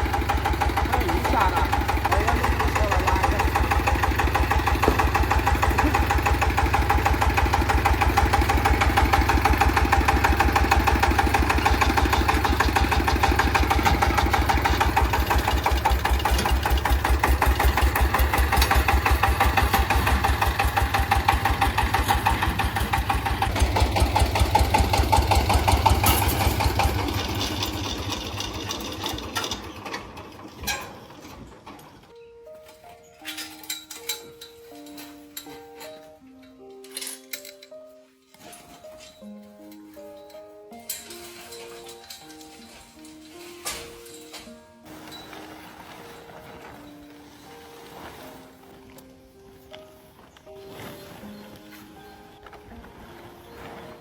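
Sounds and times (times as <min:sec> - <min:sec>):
engine running with low pulses: 0:00.0 - 0:30.6.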